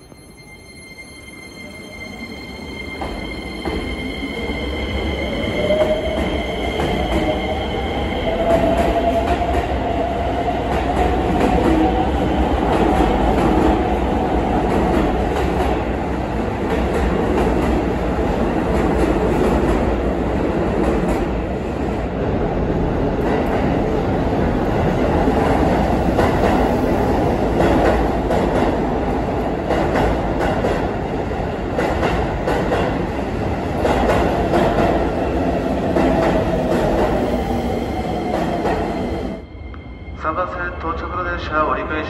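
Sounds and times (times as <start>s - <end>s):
steady high tone: 0.0s - 8.1s.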